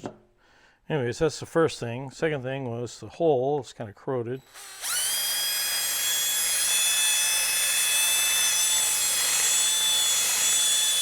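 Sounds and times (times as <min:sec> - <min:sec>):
small power tool whining: 0:04.4 - 0:11.0.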